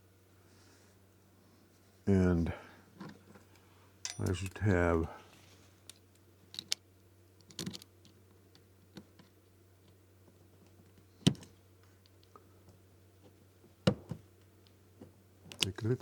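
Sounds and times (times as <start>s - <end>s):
faint low hum: 0.0s - 16.0s
clicks and knocks of lock parts: 4.0s - 4.7s, 5.9s - 6.8s, 7.4s - 10.0s, 15.5s - 15.9s.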